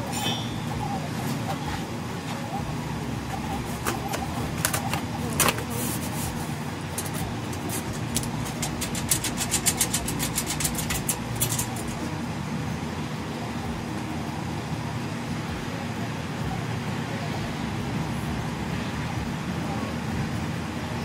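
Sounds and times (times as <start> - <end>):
low traffic rumble: 0.0 - 21.0
rapid sharp clicks: 6.9 - 12.1.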